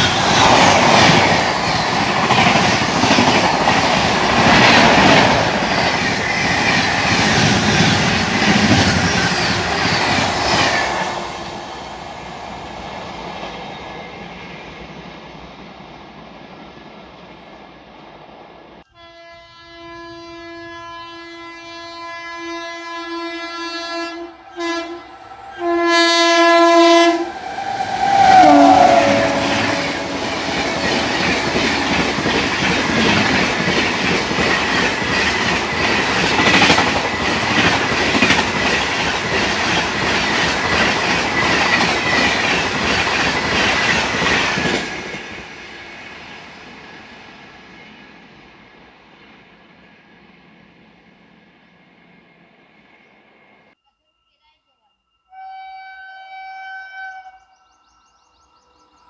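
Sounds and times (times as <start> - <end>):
train rushing past on rails: 0.0 - 18.9, 21.9 - 53.8
train wheel and rail noise: 0.0 - 18.9, 20.6 - 53.8
locomotive horn blasts: 18.9 - 32.2, 55.3 - 57.5.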